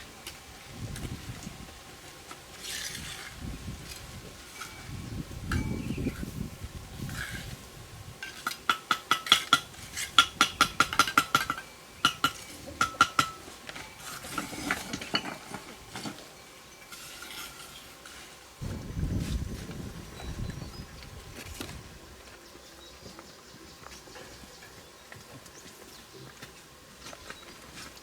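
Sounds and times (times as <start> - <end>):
low rumbling noise: 18.6 - 22.2.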